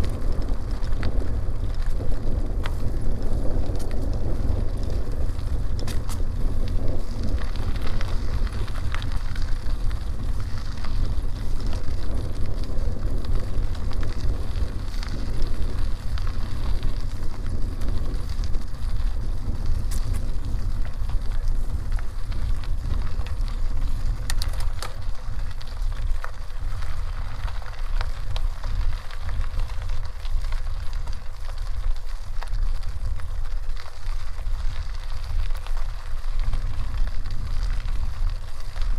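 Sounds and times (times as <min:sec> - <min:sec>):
tyres crackling over dirt road: 0:00.0 - 0:38.9
wind rumbling on microphone: 0:00.0 - 0:38.9
small clicks: 0:21.9 - 0:34.0.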